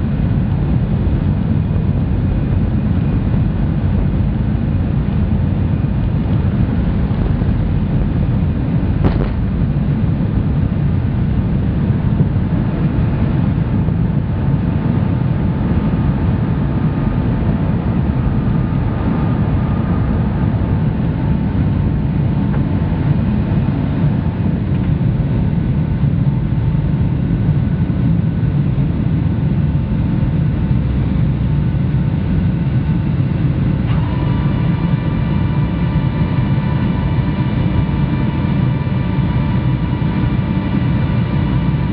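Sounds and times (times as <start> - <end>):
jet engines and airflow rumbling: 0.0 - 41.9
faint whining tones: 1.1 - 26.0, 29.9 - 41.9.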